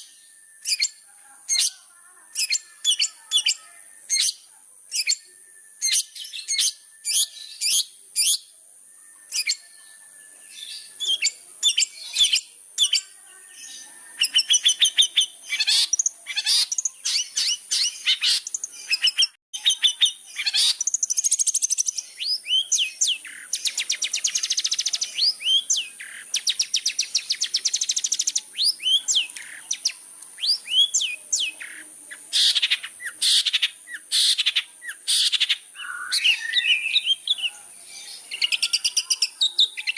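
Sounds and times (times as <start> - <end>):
bird song with chirps and trills: 0.0 - 39.9.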